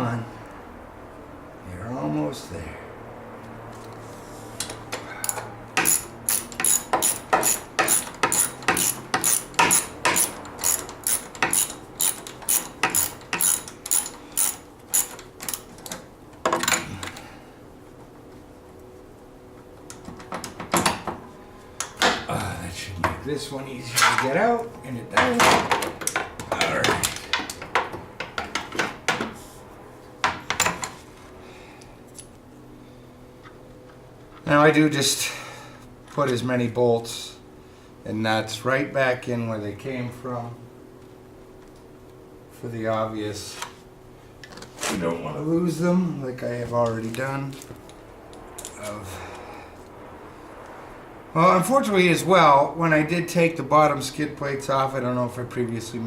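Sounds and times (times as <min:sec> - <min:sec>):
socket ratchet clicking: 0:05.3 - 0:15.6.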